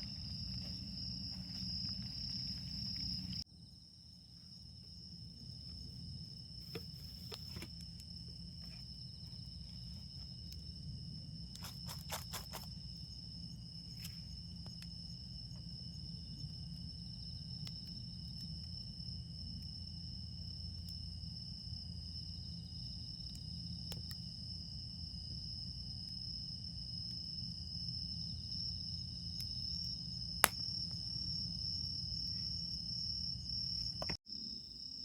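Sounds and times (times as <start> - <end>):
insects trilling: 0.0 - 35.0.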